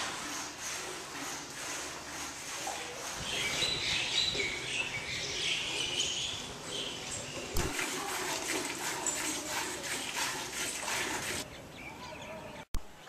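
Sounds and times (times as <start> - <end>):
small birds chirping: 2.8 - 7.6.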